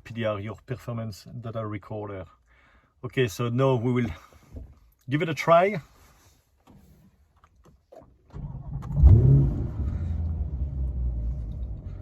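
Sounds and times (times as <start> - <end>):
car engine starting and idling: 7.5 - 12.0.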